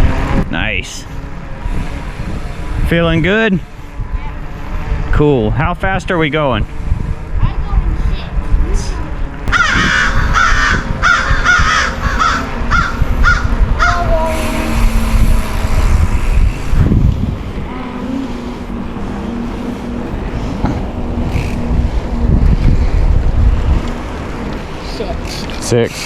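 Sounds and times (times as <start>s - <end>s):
bicycle tyre noise: 0.0s - 26.0s
wind on microphone: 0.0s - 26.0s.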